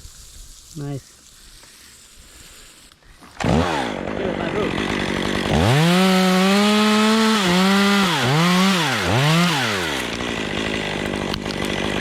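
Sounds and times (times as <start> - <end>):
chainsaw revving: 3.2 - 12.0.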